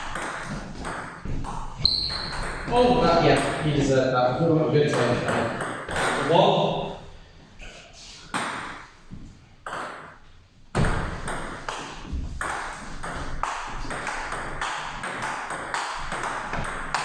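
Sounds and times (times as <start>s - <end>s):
table tennis ball hits: 0.0s - 3.8s, 4.9s - 6.4s, 8.3s - 9.0s, 9.6s - 17.0s.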